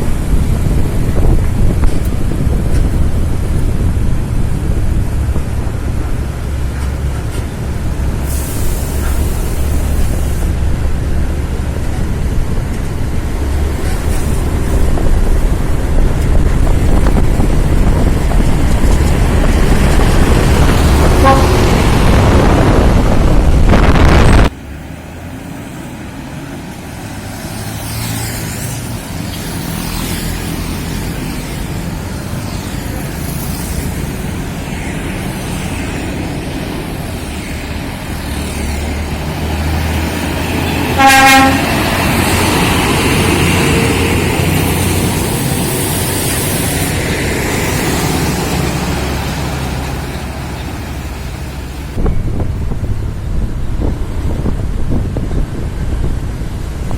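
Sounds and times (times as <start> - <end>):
heavy truck engine and road rumble: 0.0 - 56.9
loud rushing noise: 0.0 - 56.9
truck horn toot: 21.0 - 21.9, 40.9 - 41.8.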